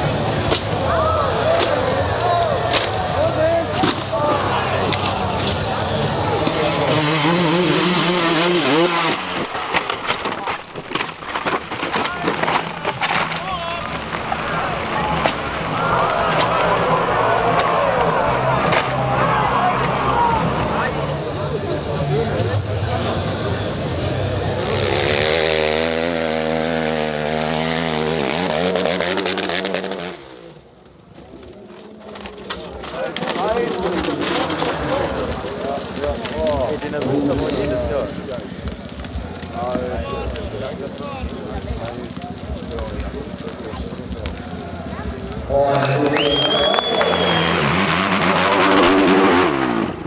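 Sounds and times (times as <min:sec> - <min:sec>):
dirt bike engine revving: 0:03.7 - 0:10.4, 0:12.1 - 0:21.0, 0:24.3 - 0:30.6, 0:46.5 - 0:50.0
dirt bike engine revving high: 0:06.3 - 0:09.6, 0:24.4 - 0:30.4, 0:46.9 - 0:50.0
sharp crackles and knocks: 0:08.6 - 0:20.1, 0:30.8 - 0:46.1.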